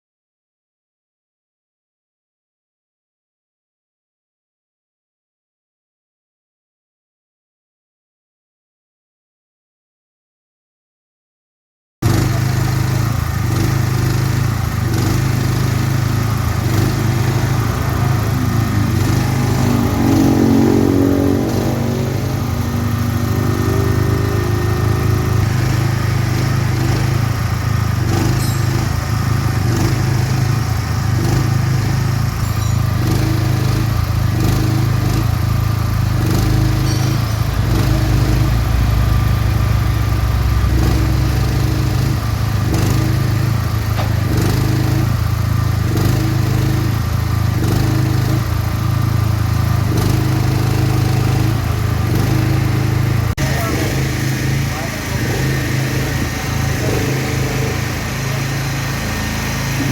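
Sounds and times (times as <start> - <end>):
second engine tone: 12.0 - 59.9
small engine running: 12.0 - 59.9.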